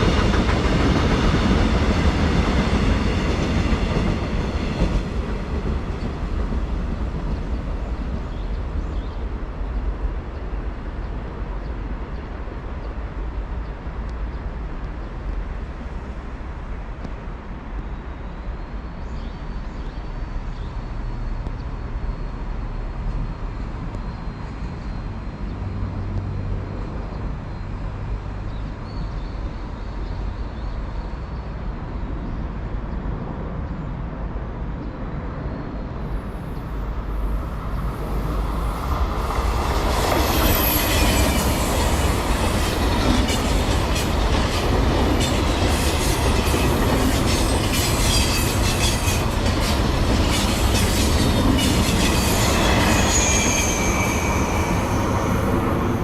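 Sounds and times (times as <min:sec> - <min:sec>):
train rumbling past: 0:00.0 - 0:56.0
train wheels squealing and clacking: 0:38.0 - 0:56.0.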